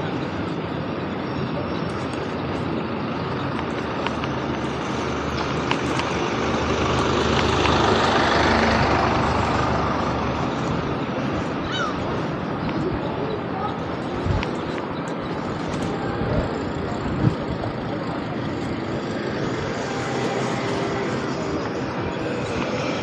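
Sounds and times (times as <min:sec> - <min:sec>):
motor vehicle passing: 0:03.9 - 0:12.4, 0:15.4 - 0:23.0.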